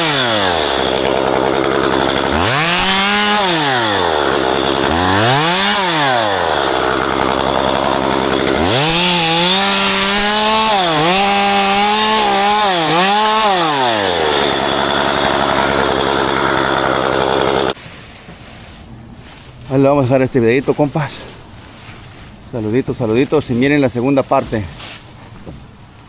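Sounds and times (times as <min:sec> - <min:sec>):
chainsaw engine revving: 0:00.0 - 0:17.8.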